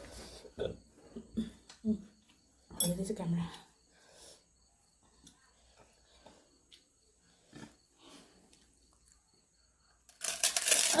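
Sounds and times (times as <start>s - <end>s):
soft chewing: 4.9s - 9.7s.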